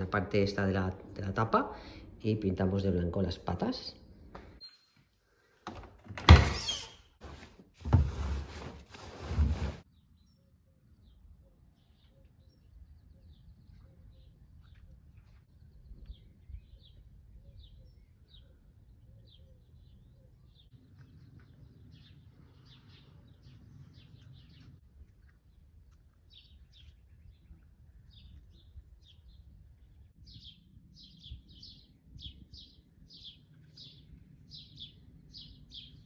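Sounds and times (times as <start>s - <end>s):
faint birds chirping: 9.9s - 36.0s.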